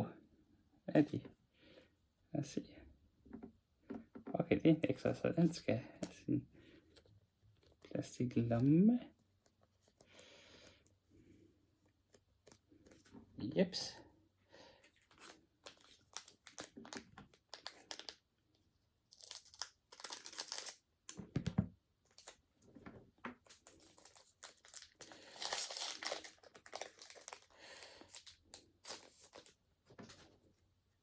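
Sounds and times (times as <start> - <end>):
plastic and foil packaging crinkling: 15.0 - 18.2, 19.1 - 20.8, 22.1 - 22.4, 23.4 - 30.2.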